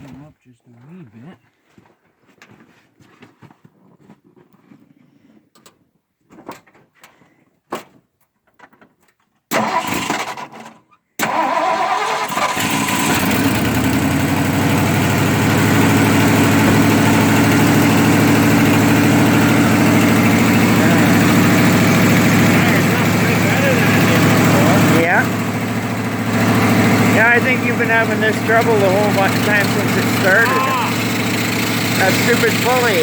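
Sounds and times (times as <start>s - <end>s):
engine starter cranking: 9.5s - 33.0s
truck engine idling: 11.3s - 33.0s.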